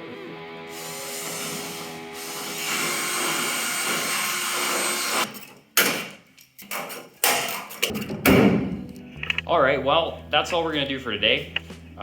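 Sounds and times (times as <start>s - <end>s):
power tool whirring: 0.7s - 5.3s.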